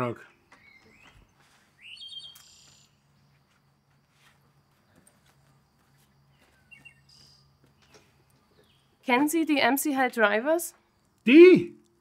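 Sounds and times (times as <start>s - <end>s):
bird chirping: 0.0s - 3.4s, 5.8s - 9.7s.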